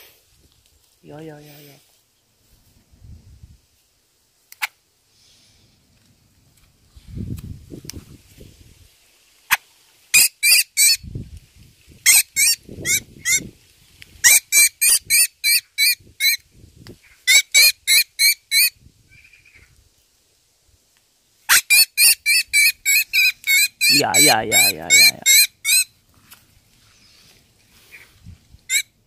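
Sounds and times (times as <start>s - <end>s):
songbird distress calls: 12.1s - 13.5s, 21.5s - 25.9s, 28.7s - 29.0s.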